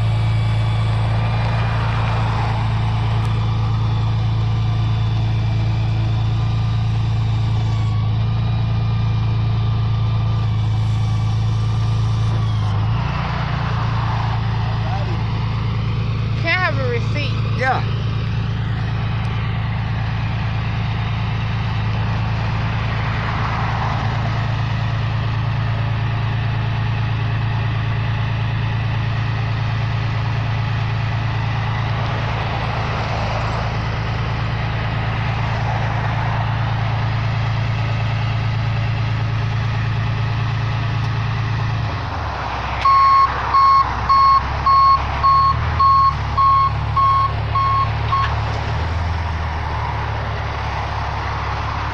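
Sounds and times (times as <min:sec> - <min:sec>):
reversing alarm beeping: 0:00.0 - 0:13.1, 0:42.8 - 0:48.4
truck engine humming: 0:00.0 - 0:51.9.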